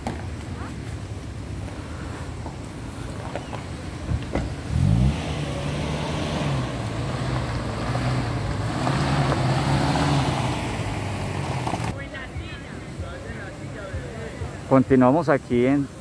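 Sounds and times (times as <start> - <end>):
vehicle engine revving and running: 4.6 - 11.9.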